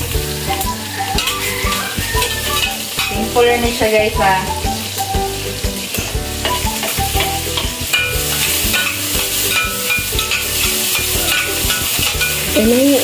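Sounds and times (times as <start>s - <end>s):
garlic and onion sizzling in oil: 0.0s - 13.0s
metal spatula clicks and scrapes: 7.2s - 12.6s.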